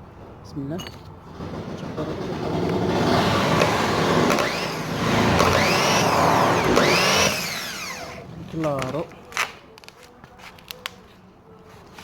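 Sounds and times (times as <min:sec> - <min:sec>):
starter motor whirring: 0:01.3 - 0:08.3.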